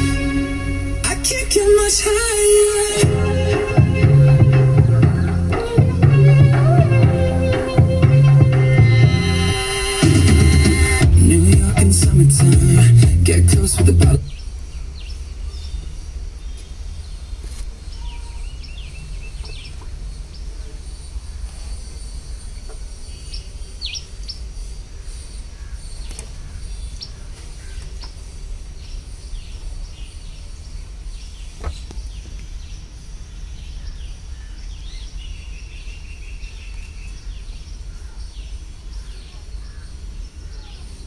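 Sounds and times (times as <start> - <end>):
low rumble: 0.0 - 19.4
birds chirping: 0.0 - 41.0.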